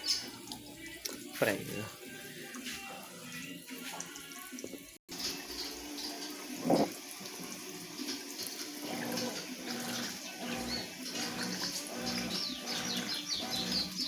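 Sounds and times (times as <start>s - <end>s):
water sloshing in washing machine: 0.0s - 14.0s.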